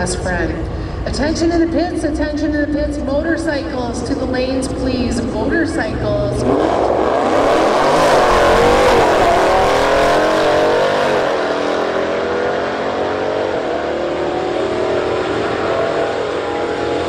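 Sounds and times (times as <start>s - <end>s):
car engine at full throttle: 3.0s - 17.0s.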